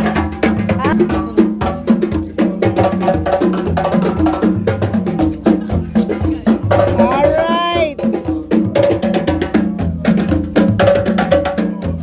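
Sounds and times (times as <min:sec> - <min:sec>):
bass line: 0:00.0 - 0:08.2.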